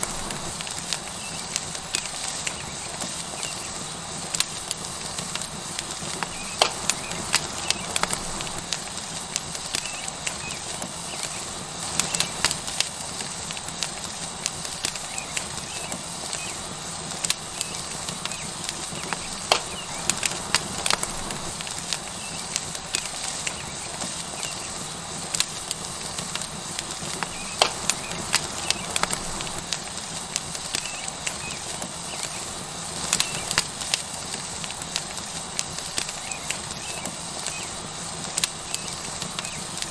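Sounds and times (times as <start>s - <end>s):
steak sizzling on hot rock: 0.0s - 39.9s
wood fire crackling: 0.0s - 39.9s.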